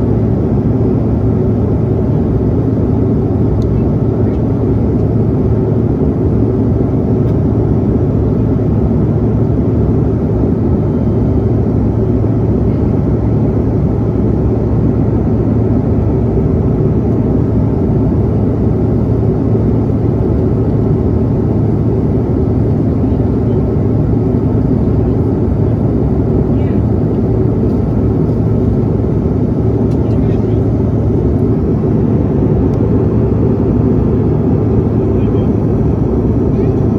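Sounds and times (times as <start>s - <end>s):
airliner cabin engine noise: 0.0s - 36.9s.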